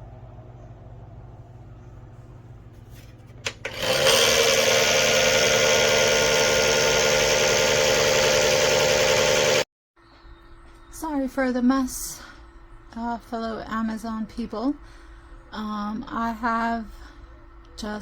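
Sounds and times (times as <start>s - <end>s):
electric motor whirring: 3.6s - 9.7s.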